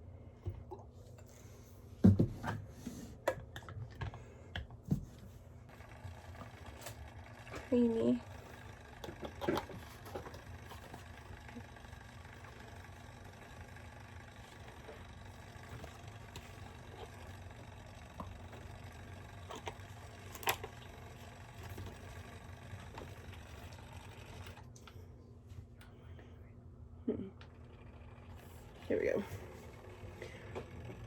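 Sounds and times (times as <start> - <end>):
milk frother motor whir: 5.6 - 25.2, 27.3 - 31.0.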